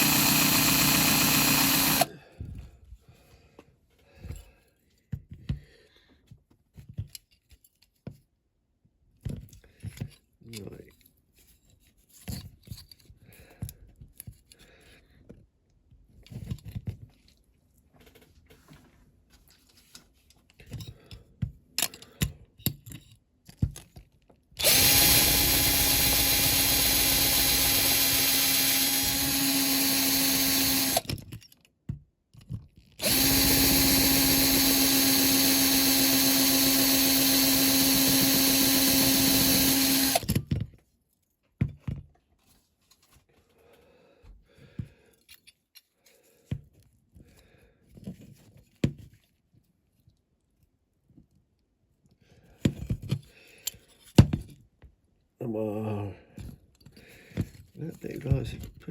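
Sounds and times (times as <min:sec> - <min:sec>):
electric drill whining: 0:00.0 - 0:02.1, 0:24.6 - 0:31.2, 0:33.0 - 0:40.4.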